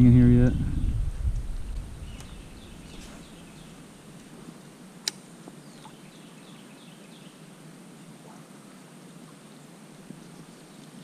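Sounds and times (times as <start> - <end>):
faint low rumble: 0.0 - 3.8
sharp click: 5.0 - 5.2.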